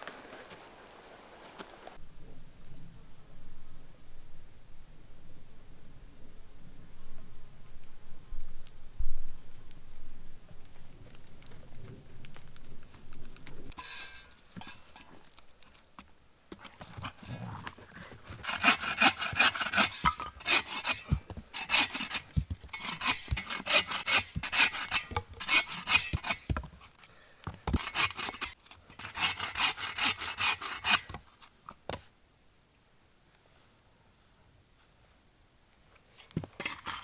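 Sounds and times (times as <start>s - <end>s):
hand saw cutting wood: 18.1s - 26.8s, 27.7s - 31.2s.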